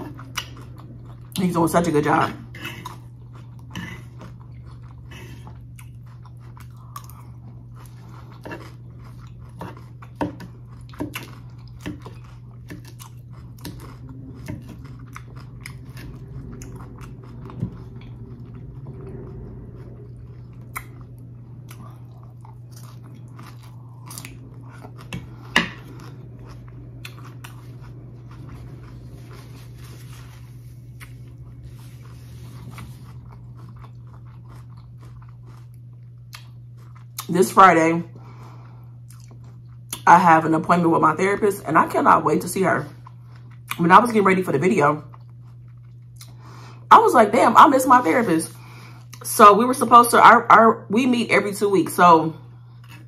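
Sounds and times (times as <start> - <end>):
person chewing crisp lettuce: 0.0 - 37.4, 38.2 - 40.0, 45.1 - 46.9, 48.6 - 49.2, 52.6 - 53.0
steady low hum: 0.0 - 53.0.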